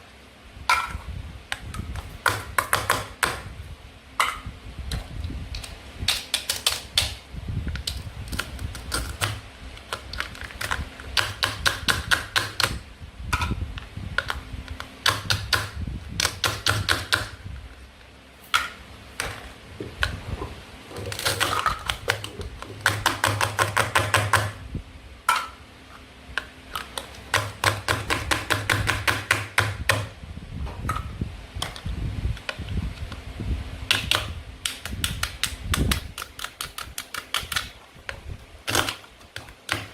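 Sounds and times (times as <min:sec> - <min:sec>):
plastic toy food clicking: 0:34.0 - 0:37.7.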